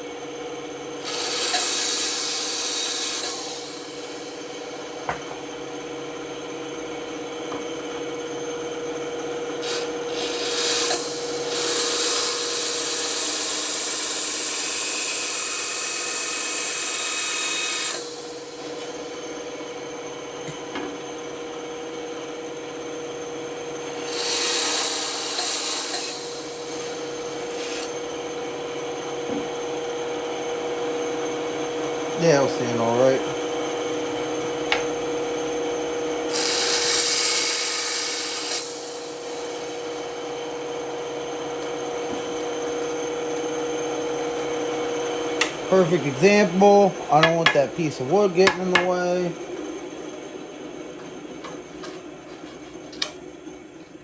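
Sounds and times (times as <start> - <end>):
band saw humming: 0.0 - 53.9
saw blade cutting wood: 1.0 - 4.3, 9.6 - 19.0, 23.9 - 28.0, 36.3 - 40.4, 45.4 - 49.3.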